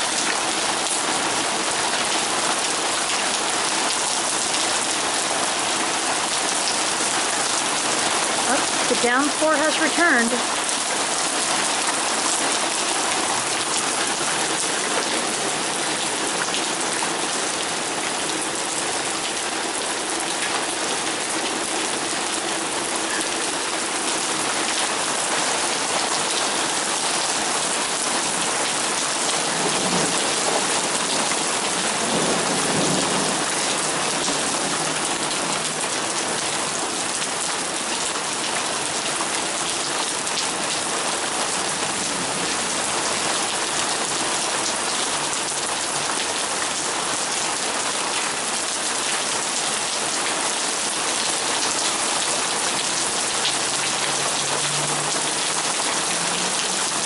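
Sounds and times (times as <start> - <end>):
torrential rain: 0.0 - 57.0.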